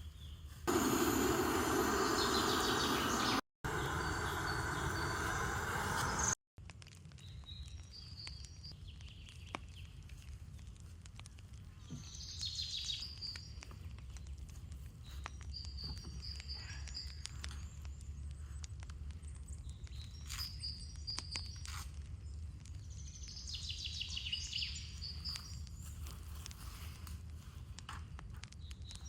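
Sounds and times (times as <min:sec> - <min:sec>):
birds chirping: 0:00.2 - 0:06.4.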